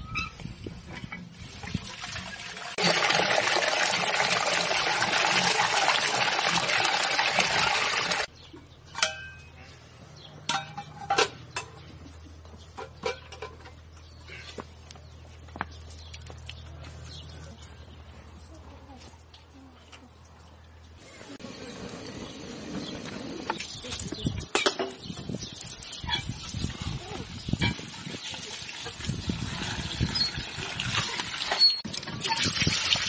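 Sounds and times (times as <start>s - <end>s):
water pouring: 1.4s - 8.3s, 25.6s - 33.0s.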